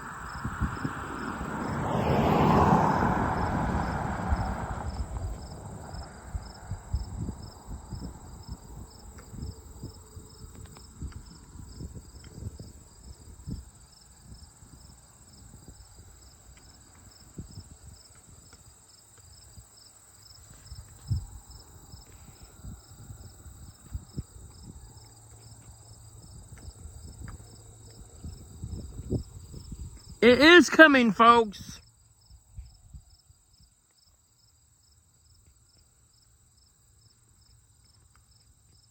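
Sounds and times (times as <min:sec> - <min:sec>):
wind buffeting microphone: 0:00.0 - 0:01.9, 0:03.4 - 0:16.2, 0:26.2 - 0:30.2
crickets chirping: 0:00.0 - 0:38.9.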